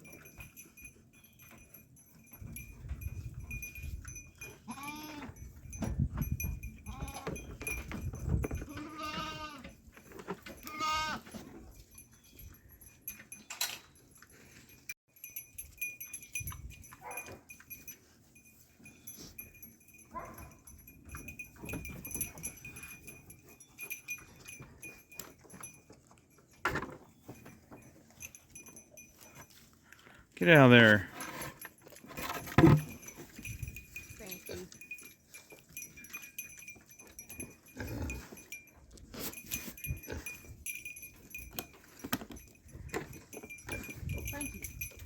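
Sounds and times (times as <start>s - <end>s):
goats bleating: 8.7s - 9.7s, 10.6s - 11.2s.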